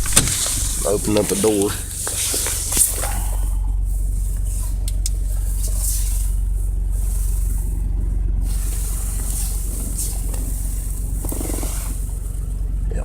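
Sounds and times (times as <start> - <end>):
car engine idling: 0.0 - 13.0
hiss of air: 1.8 - 7.7, 8.4 - 12.3.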